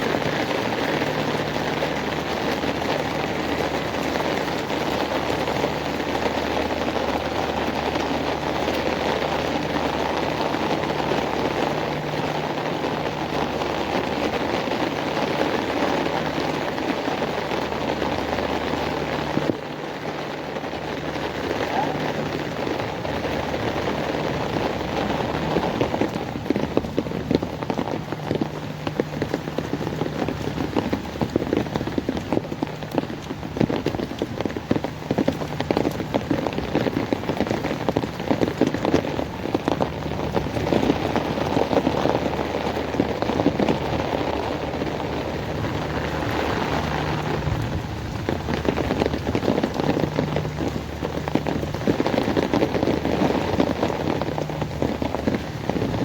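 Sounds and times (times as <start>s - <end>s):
heavy rain on hard surfaces: 0.0s - 56.0s.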